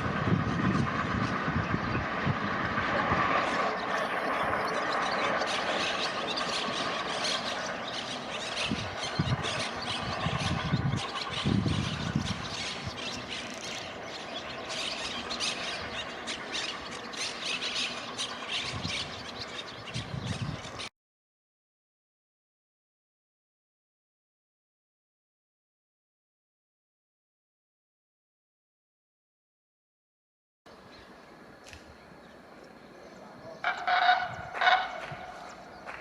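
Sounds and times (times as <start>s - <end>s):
wheels clattering on track: 0.0s - 19.8s, 33.6s - 36.0s
train wheels squealing: 3.2s - 19.7s.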